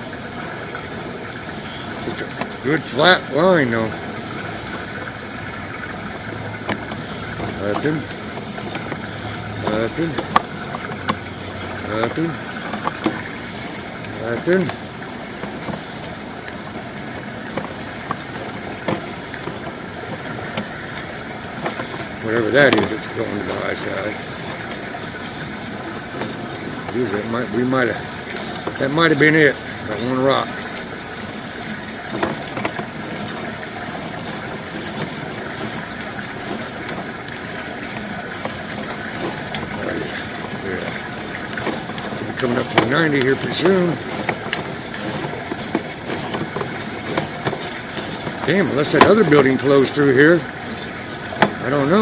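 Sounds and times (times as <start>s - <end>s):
motor running: 0.0s - 52.0s.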